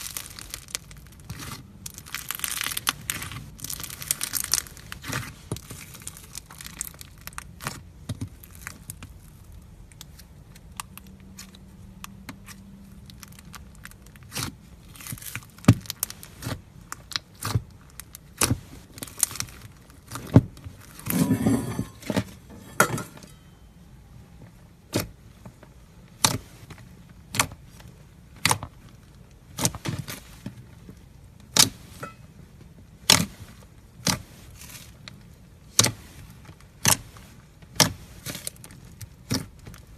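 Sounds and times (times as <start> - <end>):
slime crackling: 0.0 - 11.6.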